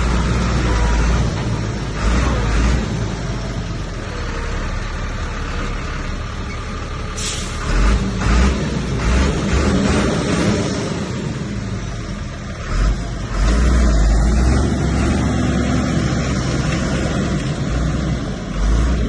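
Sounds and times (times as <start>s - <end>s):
heavy machinery diesel engine: 0.0s - 19.0s
short hiss: 7.2s - 7.6s.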